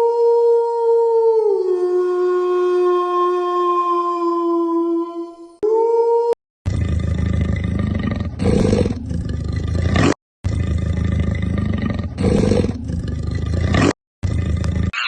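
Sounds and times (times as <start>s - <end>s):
animal roar: 6.7s - 15.0s.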